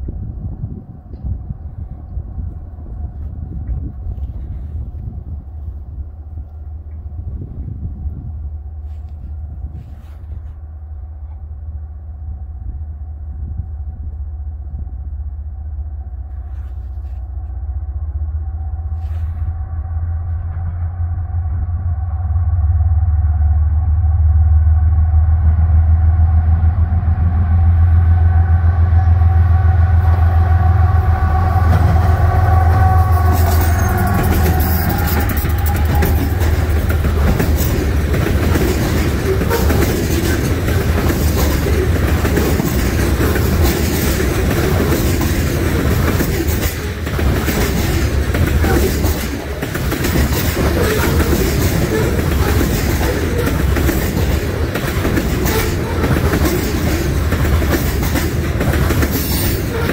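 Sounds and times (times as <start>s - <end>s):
diesel locomotive engine drone: 0.0s - 59.9s
steel wheels clicking over rail joints: 31.7s - 59.9s.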